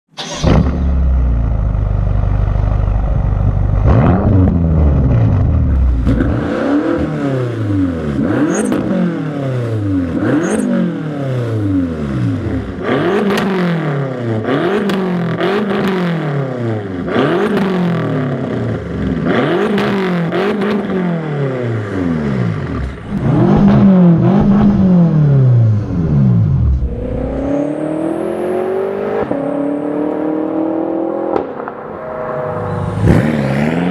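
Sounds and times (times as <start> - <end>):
car engine idling and revving: 0.2 - 33.9.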